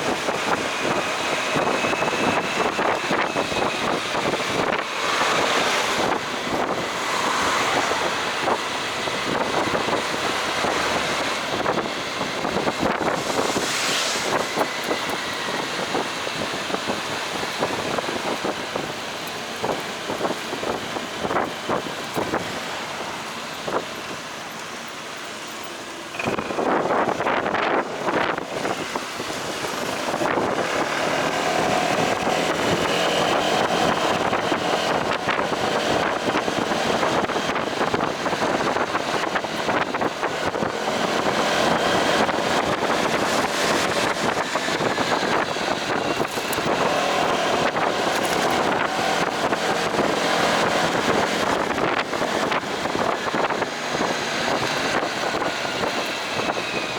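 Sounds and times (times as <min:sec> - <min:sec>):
wind noise on microphone: 0:00.0 - 0:56.9
motorcycle engine running: 0:25.6 - 0:56.9.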